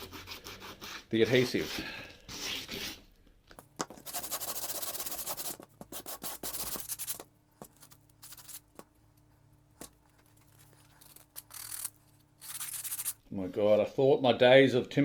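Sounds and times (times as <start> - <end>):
sandpaper rasping on wood: 4.1 - 7.2.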